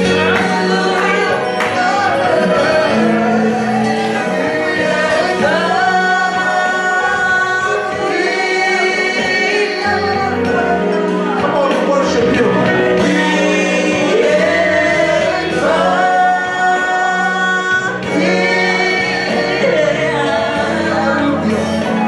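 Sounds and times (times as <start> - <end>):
gospel singing: 0.0 - 22.0
sustained instrumental chords: 0.0 - 22.0.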